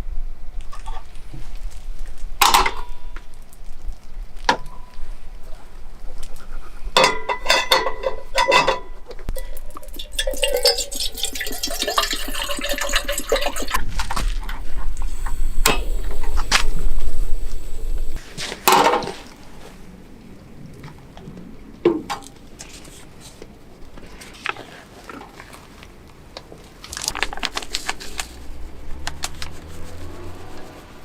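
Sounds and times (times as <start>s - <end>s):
metal cookware clinking: 7.0s - 13.8s.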